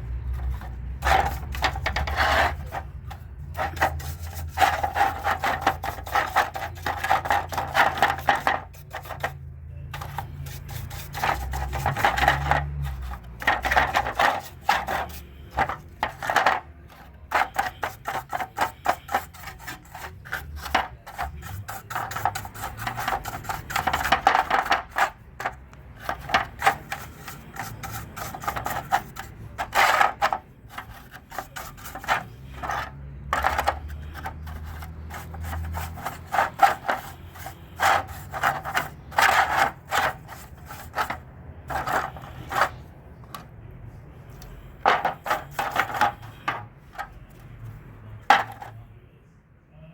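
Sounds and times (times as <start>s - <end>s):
rubbing and scraping strokes: 0.0s - 48.8s.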